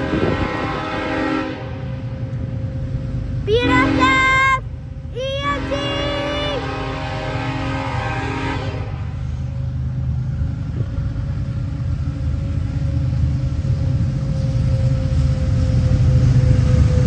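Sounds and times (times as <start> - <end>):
train horn chord: 0.0 - 2.1, 3.5 - 4.6, 5.5 - 9.4
low rumble of locomotives: 0.0 - 17.0.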